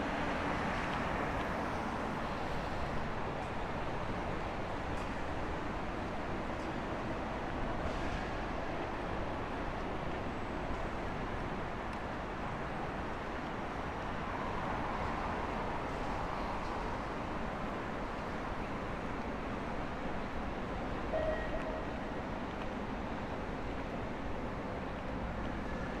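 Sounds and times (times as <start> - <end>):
short tone: 21.1 - 21.9.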